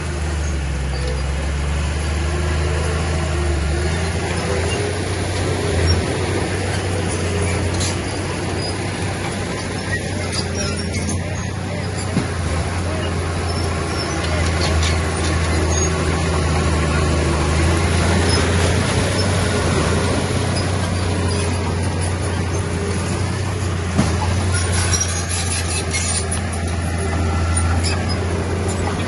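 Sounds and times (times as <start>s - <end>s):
bulldozer diesel engine droning: 0.0s - 29.0s
light metallic clicks and squeaks: 0.4s - 1.5s, 3.9s - 16.6s, 20.0s - 29.0s.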